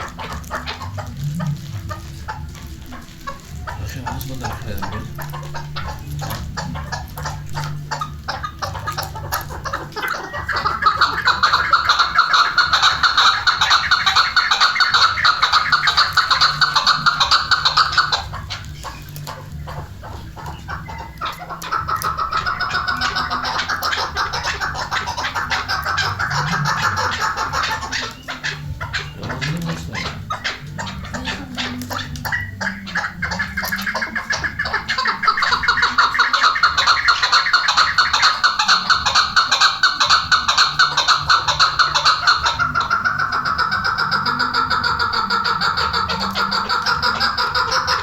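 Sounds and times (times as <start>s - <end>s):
partridge calling rapid notes: 0.0s - 48.0s.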